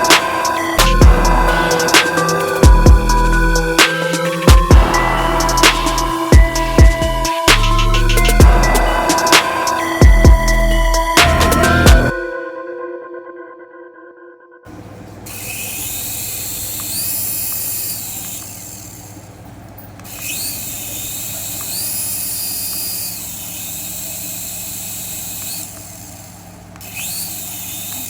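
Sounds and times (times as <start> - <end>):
toy whirring with low hum: 14.7 - 28.0.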